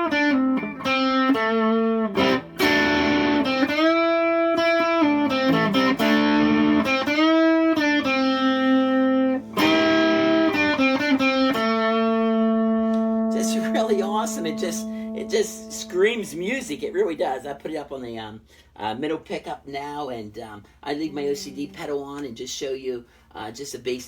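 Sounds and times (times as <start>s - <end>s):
distorted electric guitar lead: 0.0s - 16.8s.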